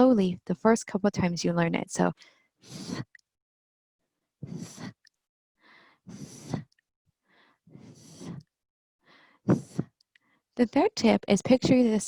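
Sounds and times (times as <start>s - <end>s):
woman's breathy puffs of air: 2.2s - 3.2s, 4.4s - 5.0s, 5.6s - 6.7s, 7.3s - 10.0s
faint breath intake: 2.6s - 3.1s, 4.4s - 5.0s, 5.7s - 6.7s, 7.3s - 8.5s, 9.1s - 10.0s.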